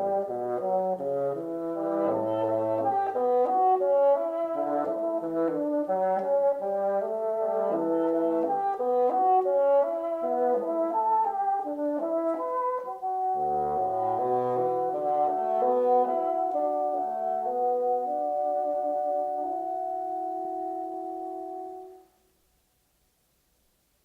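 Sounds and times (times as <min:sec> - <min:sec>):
instrumental background music: 0:00.0 - 0:22.1.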